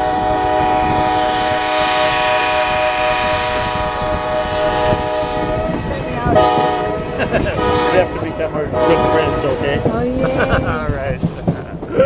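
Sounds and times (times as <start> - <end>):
train horn blast: 0.0 - 9.9
moving train rumble: 0.0 - 12.0.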